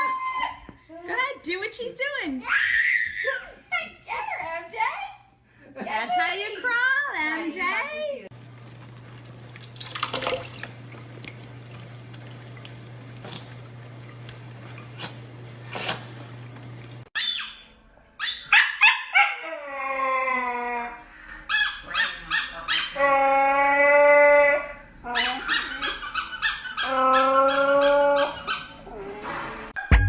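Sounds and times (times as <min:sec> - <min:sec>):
low steady hum: 0:08.3 - 0:17.1
dog howling and whining: 0:18.2 - 0:21.0, 0:22.0 - 0:29.3.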